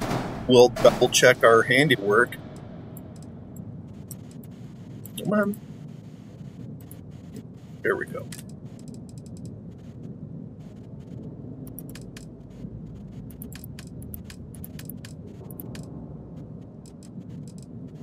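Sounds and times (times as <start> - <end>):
steady low hum: 0.0 - 18.0
mouse and keyboard clicks: 11.7 - 12.3, 13.3 - 15.9.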